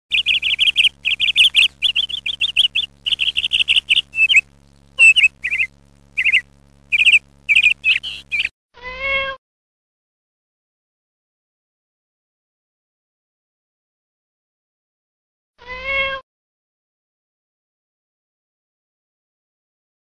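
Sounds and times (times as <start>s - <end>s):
bird chirping warbling notes: 0.1s - 8.5s
cat meow: 8.8s - 9.4s, 15.6s - 16.2s.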